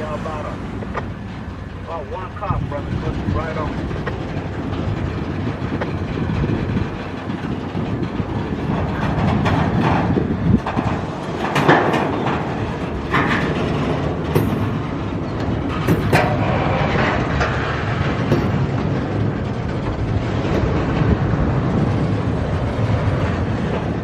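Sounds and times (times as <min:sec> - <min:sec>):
freight train wheels rumbling: 0:00.0 - 0:24.0
sharp metallic clanks: 0:08.7 - 0:20.7.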